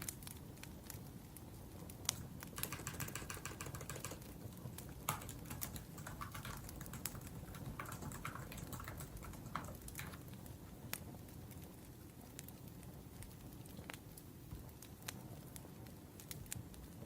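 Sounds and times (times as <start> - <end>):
wood fire burning: 0.0 - 3.3, 4.0 - 17.0
typing on laptop keyboard: 2.1 - 10.5.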